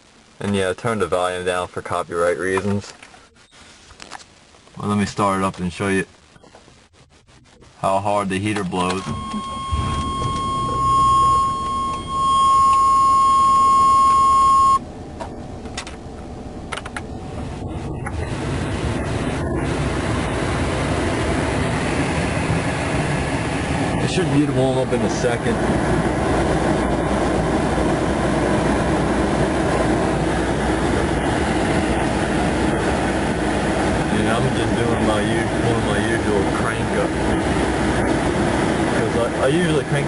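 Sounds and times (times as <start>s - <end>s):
dashboard warning beep: 8.5s - 14.8s
truck engine idling: 9.1s - 23.9s
heater blower rushing: 18.2s - 39.4s.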